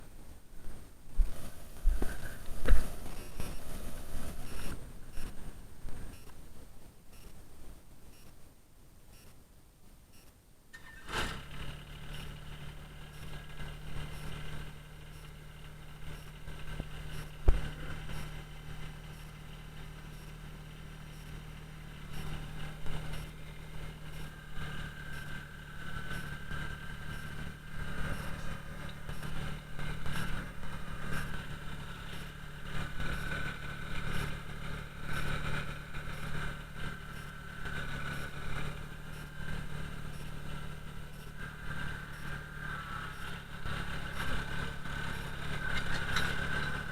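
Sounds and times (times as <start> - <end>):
tractor diesel engine running: 0.0 - 7.4, 10.8 - 46.9
higher whine: 10.8 - 46.9.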